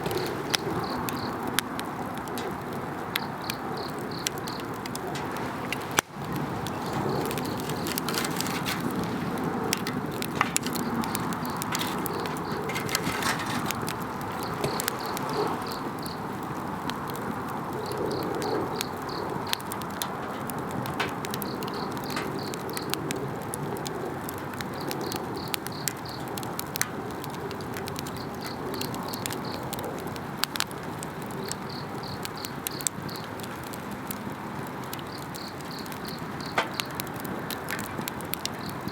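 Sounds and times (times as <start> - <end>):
campfire crackling and popping: 0.0 - 38.9
insects chirping: 0.1 - 1.4, 3.2 - 5.3, 6.0 - 16.4, 17.8 - 22.9, 24.8 - 26.3, 31.4 - 33.3, 35.0 - 37.0.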